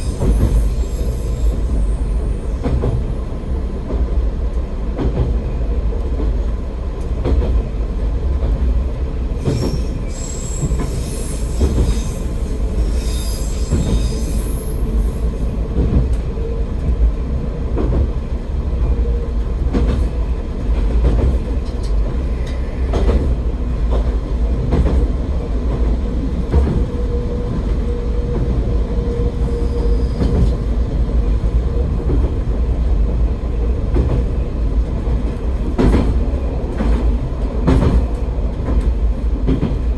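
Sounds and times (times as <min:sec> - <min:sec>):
railcar rumbling: 0:00.0 - 0:39.9
wheels squealing: 0:09.4 - 0:15.5.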